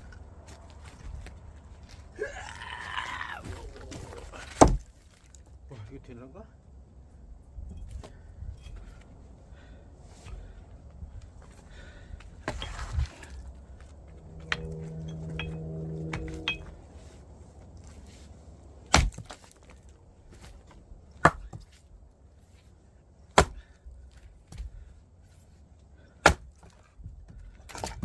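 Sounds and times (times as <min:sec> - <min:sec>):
wood cracking: 0:01.9 - 0:05.5
axe chopping firewood: 0:03.7 - 0:04.9, 0:18.9 - 0:19.5, 0:21.2 - 0:21.8, 0:23.3 - 0:23.8, 0:26.2 - 0:26.8.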